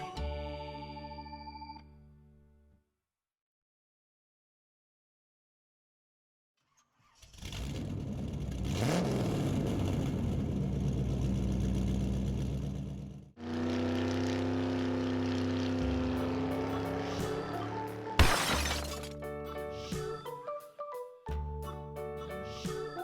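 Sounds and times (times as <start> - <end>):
car engine starting and revving: 7.2 - 18.1.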